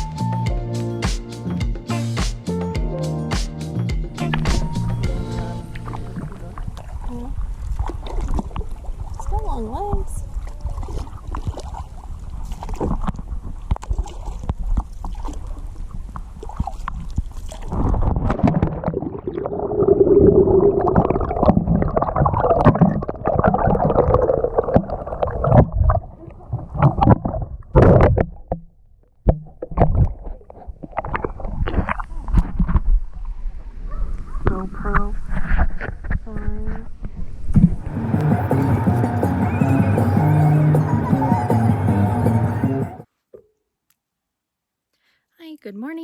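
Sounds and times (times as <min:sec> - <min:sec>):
wind rumbling on microphone: 0:04.4 - 0:28.4
water splashing against kayak: 0:05.4 - 0:28.6.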